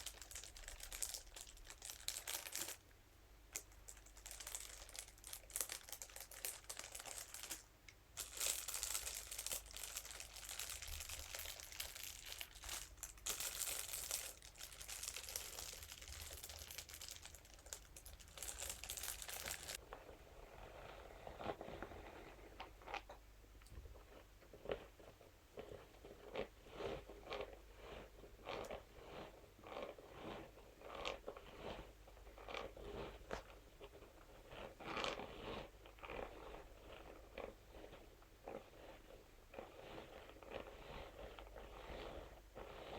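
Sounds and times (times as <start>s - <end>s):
crackly material crinkling: 0.0s - 2.9s, 3.5s - 42.9s
scalp brush scratching strokes: 34.5s - 42.9s.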